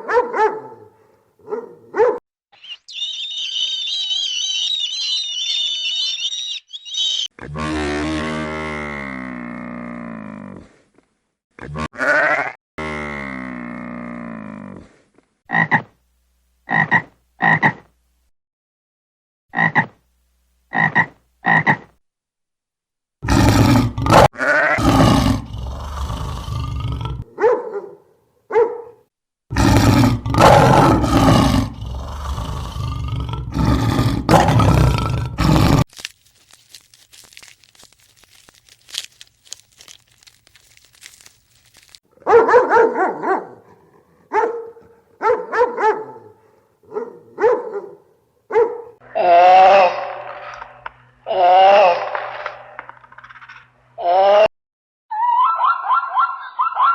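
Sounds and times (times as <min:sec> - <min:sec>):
farm animals calling: 0:02.6 - 0:07.3.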